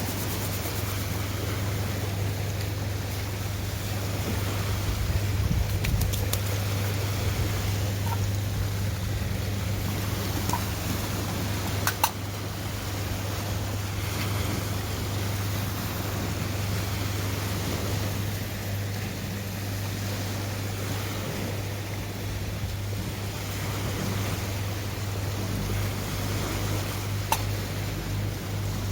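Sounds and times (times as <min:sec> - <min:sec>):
sea surf: 0:00.0 - 0:28.9
wind: 0:00.0 - 0:28.9.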